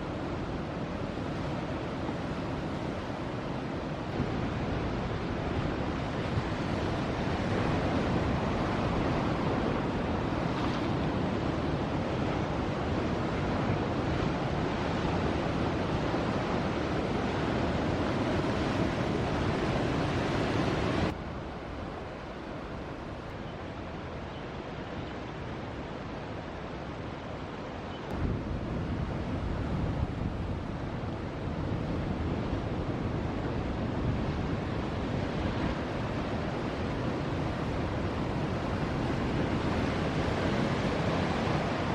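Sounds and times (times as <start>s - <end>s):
ocean surf breaking: 0.0s - 21.1s, 28.2s - 41.9s
wind buffeting microphone: 28.1s - 41.9s.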